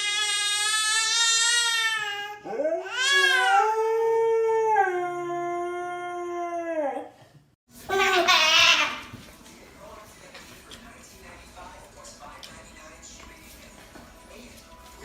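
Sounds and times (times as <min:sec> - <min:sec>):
dog howling: 0:02.4 - 0:07.1.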